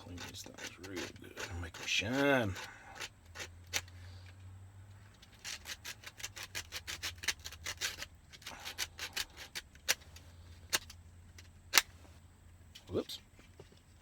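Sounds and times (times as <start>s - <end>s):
sandpaper scrubbing metal: 0.0s - 2.7s
sharp clicks: 10.7s - 12.0s.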